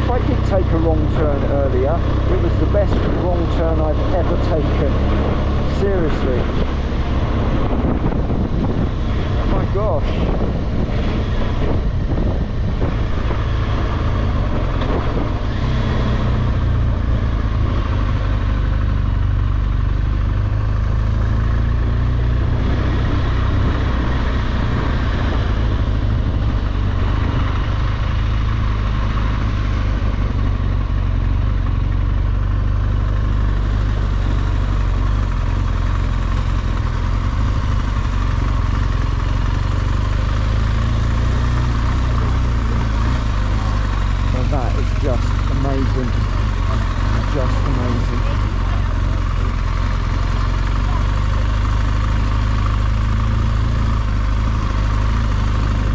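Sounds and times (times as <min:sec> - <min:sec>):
motorcycle engine running: 0:00.0 - 0:55.9
wind noise on microphone: 0:06.4 - 0:15.5.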